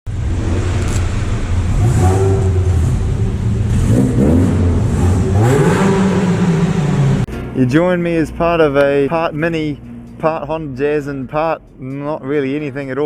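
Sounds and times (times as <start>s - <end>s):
vehicle engine revving: 0.1s - 7.3s.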